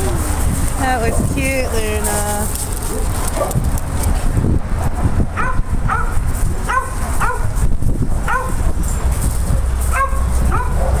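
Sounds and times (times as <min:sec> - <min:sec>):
dog barking: 0:05.4 - 0:07.5, 0:08.3 - 0:08.6, 0:09.9 - 0:11.0.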